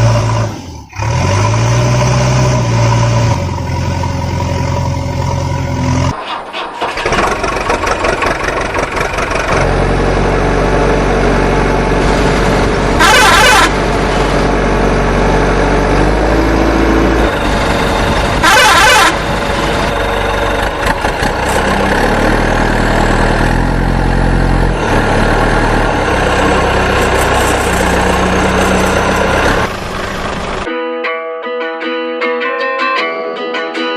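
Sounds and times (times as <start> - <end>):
vehicle engine running: 0.0 - 30.7
loud horn blasts: 12.9 - 13.8, 18.2 - 19.4.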